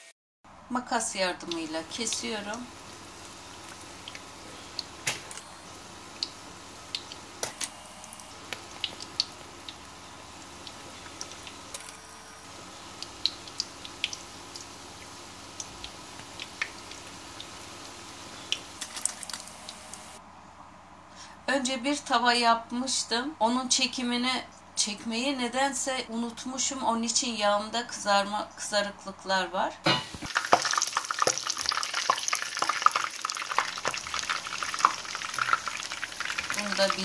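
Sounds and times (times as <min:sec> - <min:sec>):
oil sizzling with pops: 0:01.4 - 0:20.2, 0:30.0 - 0:37.0.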